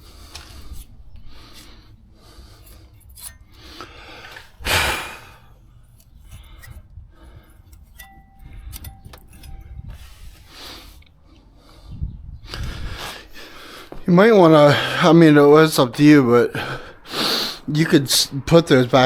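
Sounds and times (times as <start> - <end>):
loud scrape: 0.0 - 11.0
metallic clinks of hand tools: 7.8 - 9.8.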